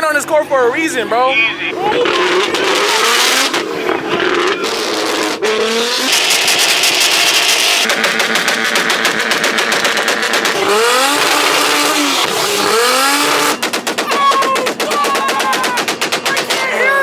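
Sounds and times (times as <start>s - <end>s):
car engine revving: 0.0s - 17.0s
rapid crackling rattle: 6.1s - 16.7s.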